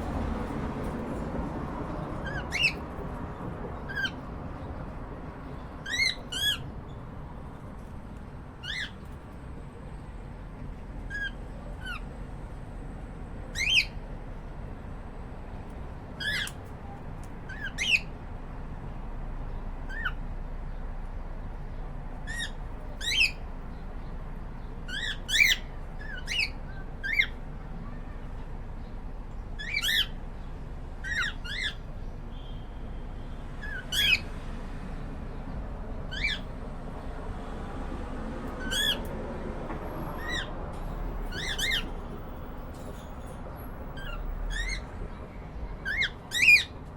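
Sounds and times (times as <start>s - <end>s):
cockatiels chirping: 2.2s - 2.8s, 3.9s - 4.2s, 5.8s - 6.7s, 8.6s - 9.0s, 13.6s - 14.0s, 16.2s - 16.6s, 19.9s - 20.2s, 22.3s - 23.4s, 24.9s - 27.4s, 29.6s - 30.2s, 31.0s - 31.9s, 36.1s - 36.5s, 38.6s - 39.1s, 40.2s - 40.5s, 41.3s - 42.0s, 44.0s - 44.9s, 45.8s - 46.8s.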